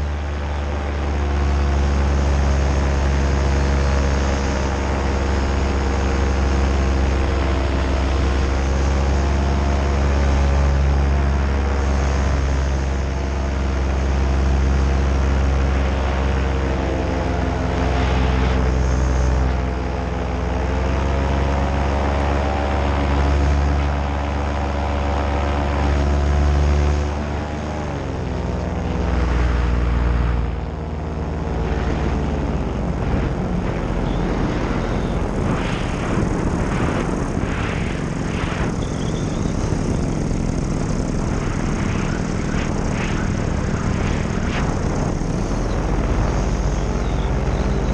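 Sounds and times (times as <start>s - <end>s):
paramotor engine and propeller: 0.0s - 47.9s.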